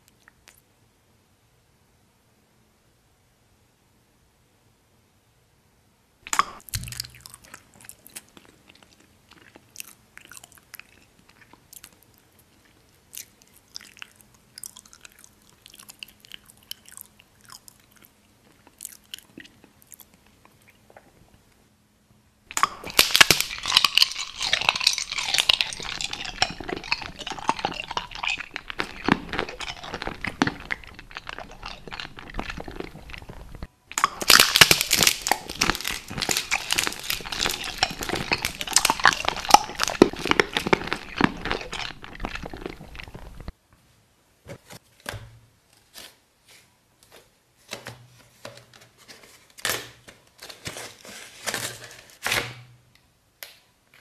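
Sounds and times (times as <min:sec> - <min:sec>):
crunching hard brittle food: 0:06.3 - 0:20.1, 0:22.5 - 0:43.5.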